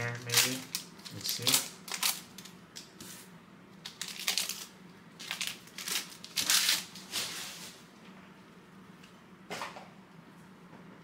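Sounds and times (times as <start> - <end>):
card pack wrapper crinkling: 0.1 - 2.5, 3.8 - 7.1.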